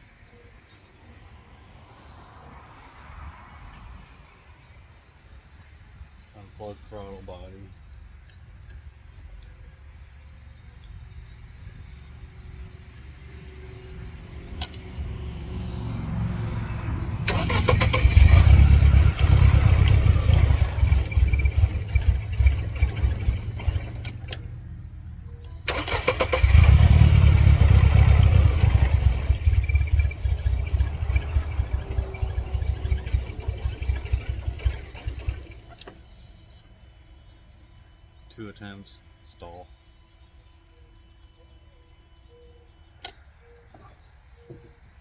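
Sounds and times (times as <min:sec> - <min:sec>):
car engine starting and running: 0:13.8 - 0:24.6, 0:25.3 - 0:36.6.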